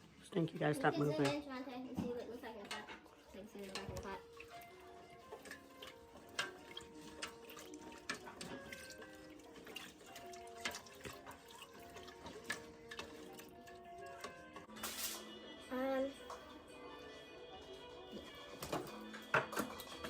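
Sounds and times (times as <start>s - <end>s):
pot bubbling and popping: 0.0s - 14.8s
soft background music: 0.0s - 20.0s.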